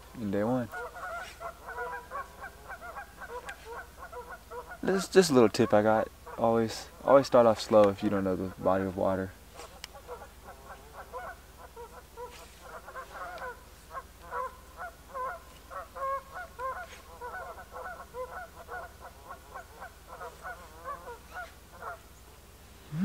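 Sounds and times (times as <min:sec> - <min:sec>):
birds calling: 0:00.0 - 0:23.0.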